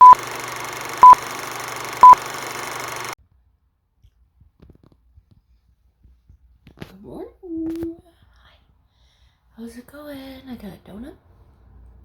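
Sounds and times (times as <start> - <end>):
short electronic beeps: 0.0 - 3.2.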